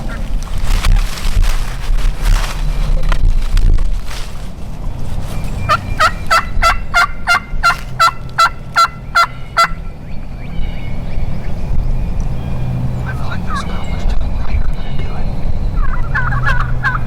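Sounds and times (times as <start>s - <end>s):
low rumble: 0.0s - 17.0s
turkey yelps: 5.4s - 11.1s, 13.0s - 17.0s.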